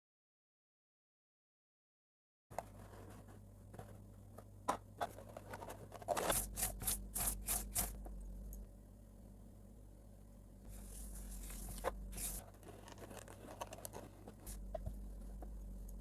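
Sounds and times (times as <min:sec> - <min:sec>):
packaging scraping and rustling: 0:05.0 - 0:08.0, 0:10.7 - 0:14.9.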